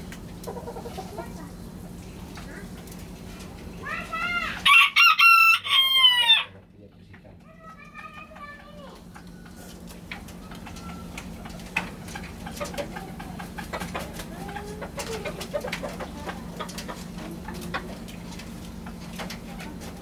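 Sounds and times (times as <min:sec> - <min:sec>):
chickens clucking: 0:00.0 - 0:20.0
steady low hum: 0:00.0 - 0:20.0
doves cooing: 0:07.6 - 0:20.0.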